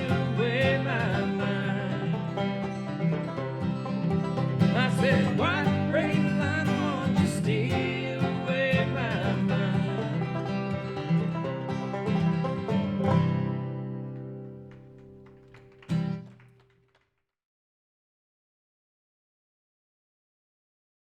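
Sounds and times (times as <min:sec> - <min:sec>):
bluegrass banjo and guitar: 0:00.0 - 0:16.3.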